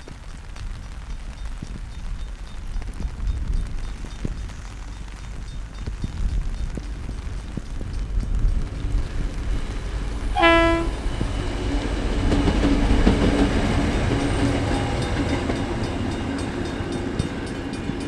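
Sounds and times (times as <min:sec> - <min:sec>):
train rumbling past: 0:07.0 - 0:18.0
train horn blast: 0:10.2 - 0:11.4.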